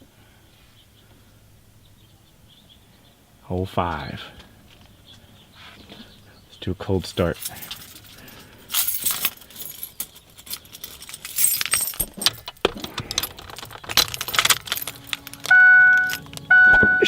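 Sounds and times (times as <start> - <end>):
keys jangling: 7.2 - 16.3
electronic chime beeping: 15.4 - 17.0.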